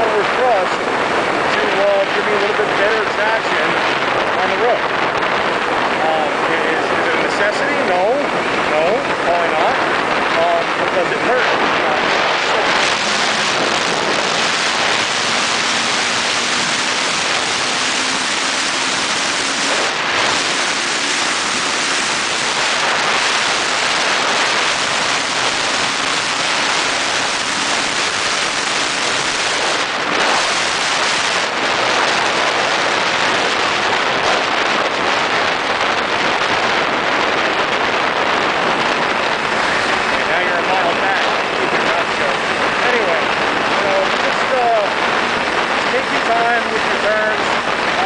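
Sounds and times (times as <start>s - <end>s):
wind rushing on microphone: 0.0s - 48.0s
motorcycle engine hum: 8.0s - 43.8s.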